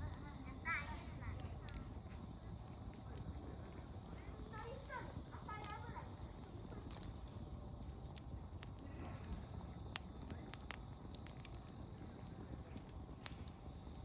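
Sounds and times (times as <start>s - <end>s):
campfire burning with crackling pops: 0.0s - 14.0s
insects chirping: 0.0s - 14.0s.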